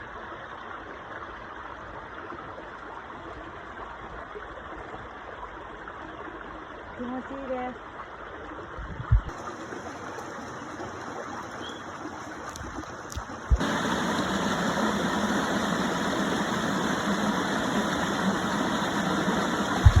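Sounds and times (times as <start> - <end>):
waterfall and stream rushing: 9.3 - 20.0
low bump: 19.8 - 20.0.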